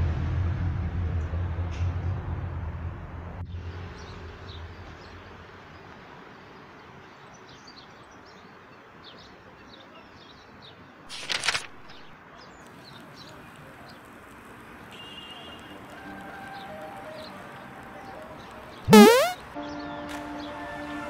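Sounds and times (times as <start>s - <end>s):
outdoor background noise: 0.0s - 21.0s
short loud burst of noise: 18.9s - 19.4s.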